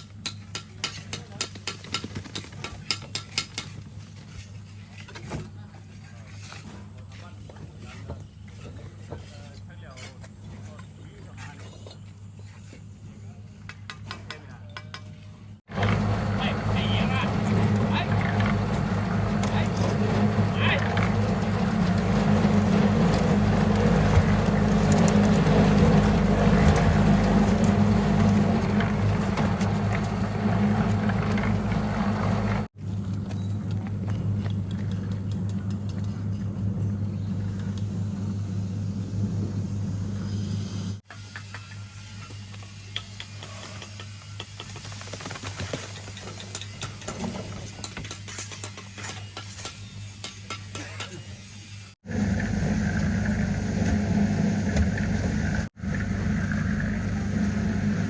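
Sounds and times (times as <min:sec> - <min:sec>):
small engine running: 0:15.7 - 0:41.0, 0:52.0 - 0:58.0.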